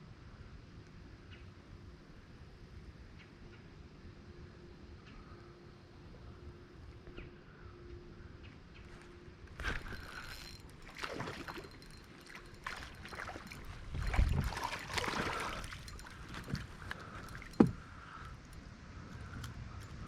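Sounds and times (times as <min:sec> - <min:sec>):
water splashing around a kayak: 0:09.5 - 0:18.3.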